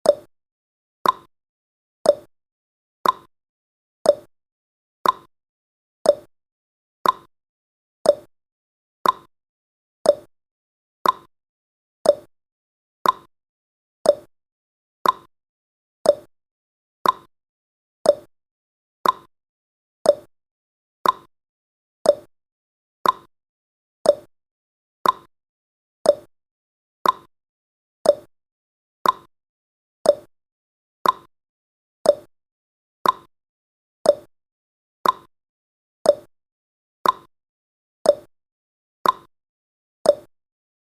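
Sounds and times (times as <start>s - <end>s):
clock tick-tock: 0.0s - 0.3s, 1.0s - 1.3s, 2.0s - 2.3s, 3.0s - 3.3s, 4.0s - 4.3s, 5.0s - 5.3s, 6.0s - 6.3s, 7.0s - 7.3s, 8.0s - 8.3s, 9.0s - 9.3s, 10.0s - 10.3s, 11.0s - 11.3s, 12.0s - 12.3s, 13.0s - 13.3s, 14.0s - 14.3s, 15.0s - 15.3s, 16.0s - 16.3s, 17.0s - 17.3s, 18.0s - 18.3s, 19.0s - 19.3s, 20.0s - 20.3s, 21.0s - 21.3s, 22.0s - 22.3s, 23.0s - 23.3s, 24.0s - 24.3s, 25.0s - 25.3s, 26.0s - 26.3s, 27.0s - 27.3s, 28.0s - 28.3s, 29.0s - 29.3s, 30.0s - 30.3s, 31.0s - 31.3s, 32.0s - 32.3s, 33.0s - 33.3s, 34.0s - 34.3s, 35.0s - 35.3s, 36.0s - 36.3s, 37.0s - 37.3s, 38.0s - 38.3s, 39.0s - 39.3s, 40.0s - 40.4s.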